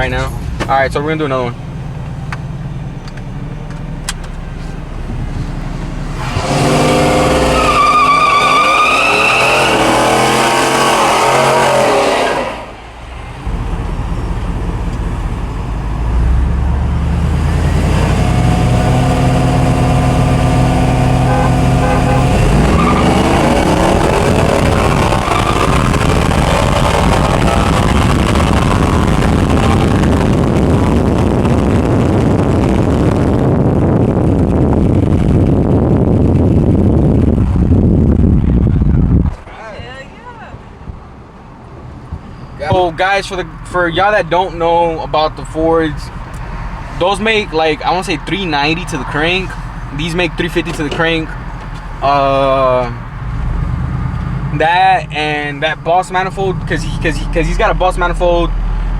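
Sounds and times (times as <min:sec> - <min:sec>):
engine at full throttle: 0:05.1 - 0:07.7, 0:09.5 - 0:38.5
steady rushing noise: 0:17.7 - 0:55.6.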